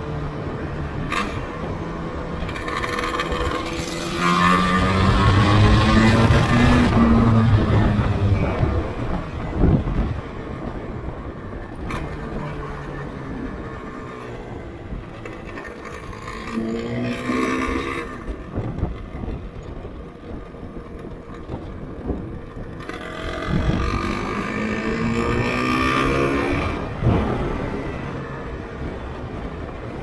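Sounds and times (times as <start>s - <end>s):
motorcycle engine revving: 0.8s - 10.1s, 22.8s - 29.1s.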